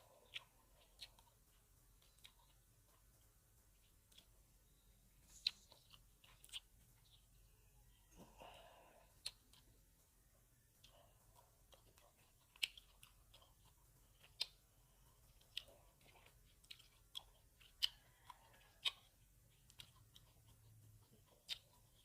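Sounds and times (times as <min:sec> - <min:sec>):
soft wet chewing: 0:00.0 - 0:22.0.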